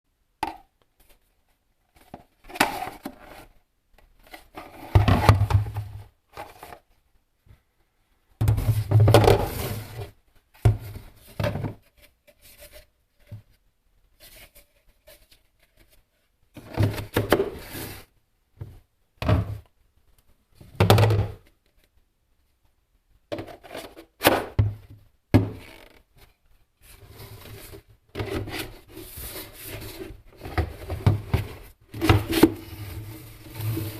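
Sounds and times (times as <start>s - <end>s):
hard objects thunking and scraping: 4.6s - 6.8s, 8.4s - 10.0s, 29.8s - 33.9s.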